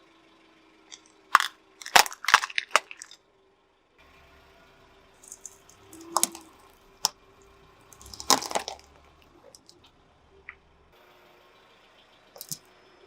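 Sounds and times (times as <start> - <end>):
objects crushed under car tyre: 0.9 - 3.2, 5.2 - 6.6, 7.9 - 9.7.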